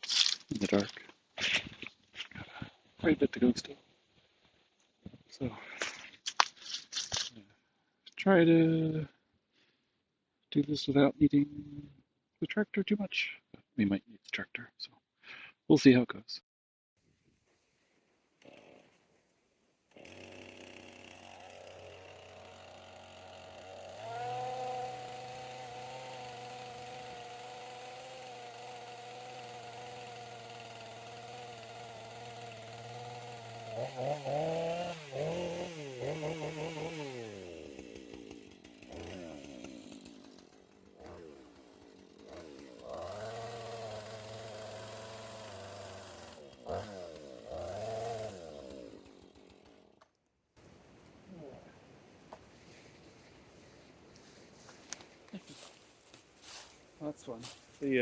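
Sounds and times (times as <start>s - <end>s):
chainsaw revving: 18.4s - 19.0s, 19.9s - 50.0s, 55.4s - 55.8s.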